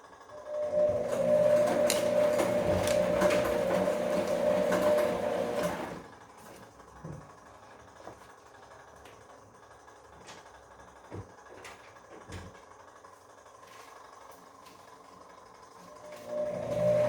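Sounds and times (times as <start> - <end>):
washing machine drum turning: 0.7 - 6.0.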